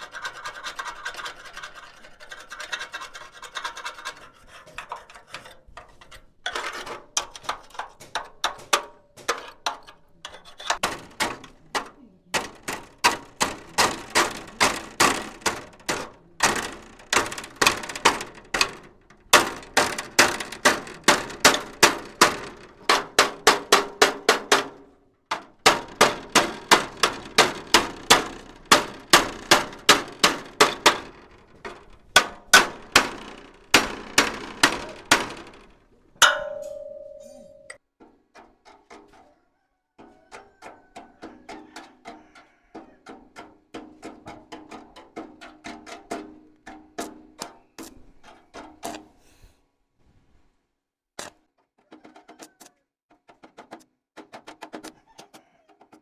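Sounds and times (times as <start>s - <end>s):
scraping rasp: 0.0s - 8.4s, 9.2s - 11.2s
hammer striking metal: 32.2s - 35.6s, 36.2s - 37.8s.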